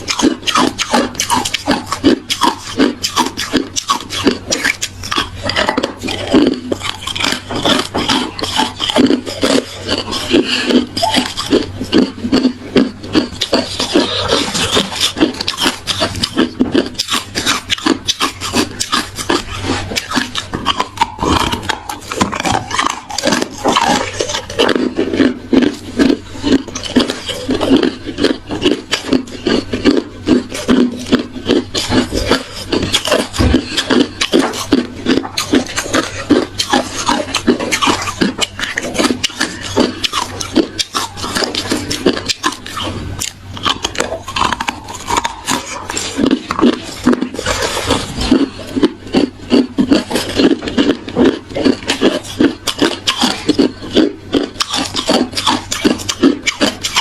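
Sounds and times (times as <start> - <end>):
ice being chewed: 0.0 - 57.0.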